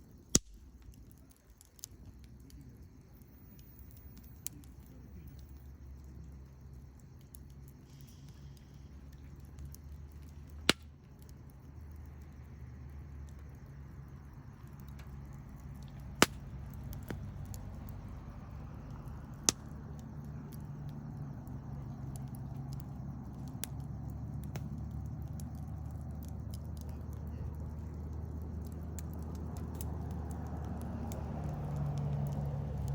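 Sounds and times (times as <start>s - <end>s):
campfire crackling: 0.0s - 32.9s
low steady rumble: 0.0s - 32.9s
sharp pops of fire: 0.0s - 32.9s.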